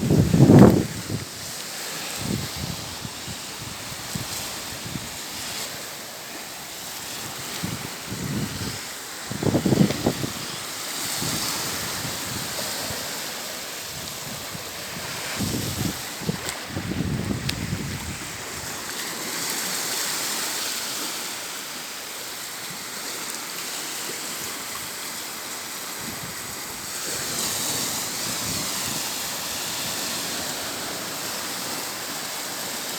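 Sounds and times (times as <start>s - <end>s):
strong wind: 0.0s - 1.5s, 2.2s - 5.4s, 7.2s - 18.9s, 26.0s - 30.1s
surf washing on beach: 0.0s - 32.9s.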